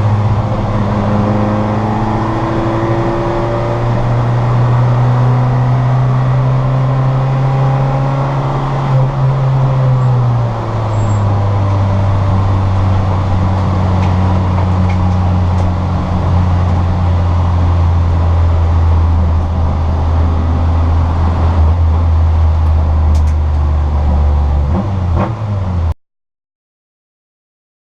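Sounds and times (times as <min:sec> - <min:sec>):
car engine running: 0:00.0 - 0:25.9.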